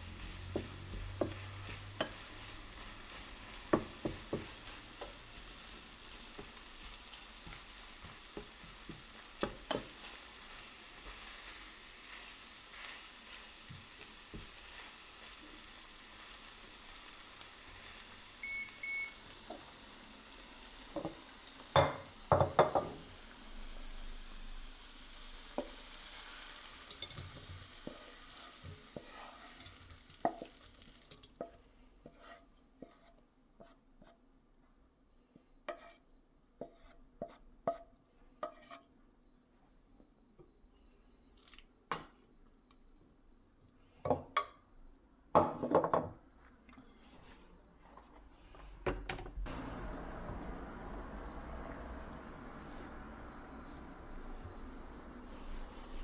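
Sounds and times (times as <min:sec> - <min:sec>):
food sizzling in a frying pan: 0:00.0 - 0:31.6, 0:49.5 - 0:56.0
short beeps: 0:18.4 - 0:19.2.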